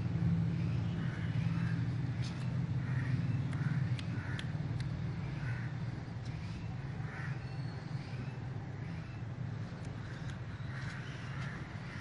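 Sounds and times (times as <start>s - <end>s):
steady low hum: 0.0s - 12.0s
crow-like cawing: 2.8s - 4.6s, 5.2s - 7.8s, 10.0s - 12.0s.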